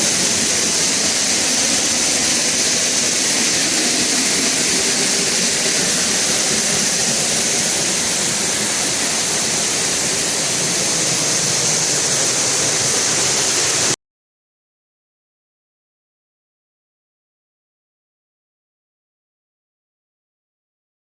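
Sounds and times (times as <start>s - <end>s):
waterfall pouring: 0.0s - 14.0s.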